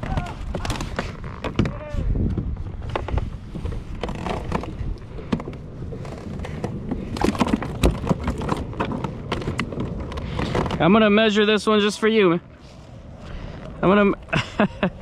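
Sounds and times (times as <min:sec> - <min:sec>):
handling noise clicks and knocks: 0:00.0 - 0:11.2
wind rumble on microphone: 0:00.0 - 0:11.3.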